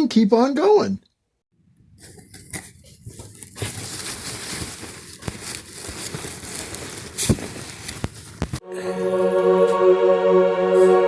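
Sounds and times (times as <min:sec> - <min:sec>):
rustling and crinkling: 0:01.8 - 0:08.6.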